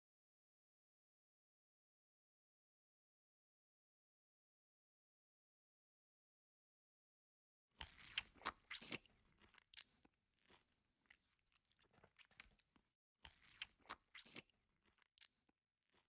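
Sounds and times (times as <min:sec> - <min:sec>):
person chewing: 0:07.8 - 0:16.0.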